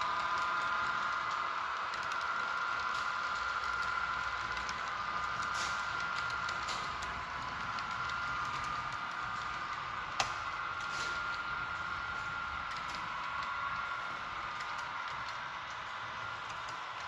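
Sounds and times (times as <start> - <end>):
model train motor whine: 0.0 - 17.0
wheels clicking on rails: 0.0 - 17.0.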